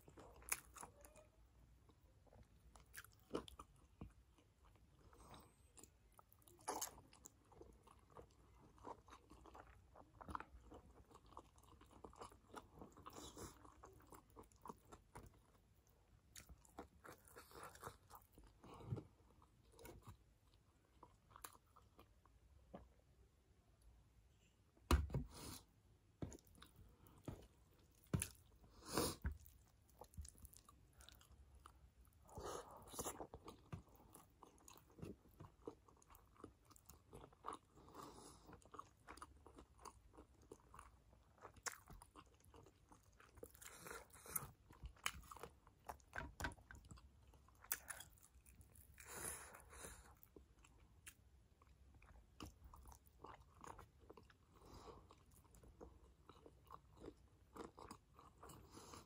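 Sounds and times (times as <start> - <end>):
chewing and biting: 26.2 - 59.0.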